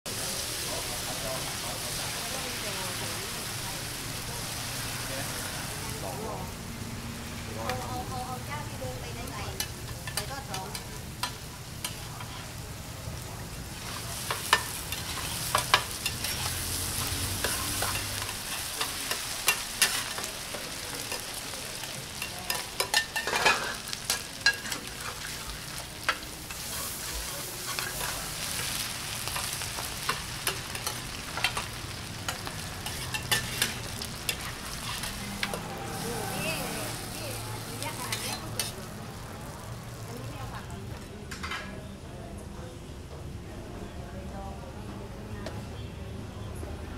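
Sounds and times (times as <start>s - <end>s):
food sizzling in hot oil: 0.1s - 41.0s
metal spatula scraping pan: 13.9s - 20.3s, 22.2s - 25.5s, 32.3s - 36.8s, 38.0s - 38.8s.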